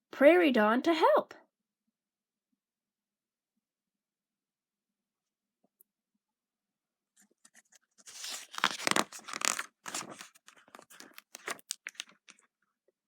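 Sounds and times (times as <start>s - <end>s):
paper rustling and crinkling: 7.2s - 12.4s.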